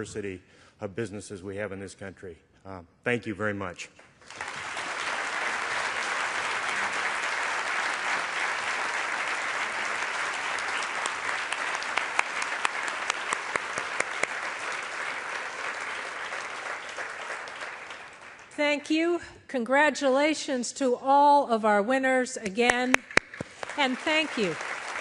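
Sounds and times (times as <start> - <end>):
louder individual claps: 4.0 - 18.6, 22.4 - 25.0
audience applauding: 4.2 - 18.6, 22.7 - 25.0.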